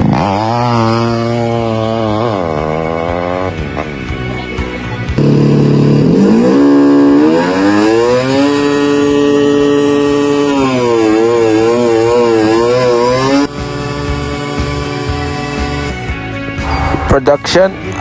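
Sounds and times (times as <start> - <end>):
motorcycle engine revving: 0.0 - 17.1.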